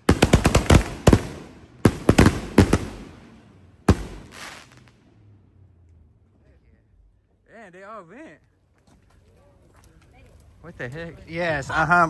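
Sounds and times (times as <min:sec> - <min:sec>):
fireworks exploding: 0:00.0 - 0:05.1.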